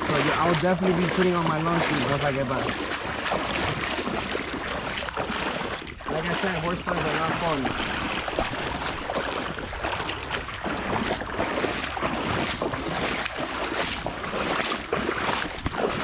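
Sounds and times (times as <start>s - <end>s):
legs wading through water: 0.0s - 16.0s
wind buffeting microphone: 0.0s - 16.0s.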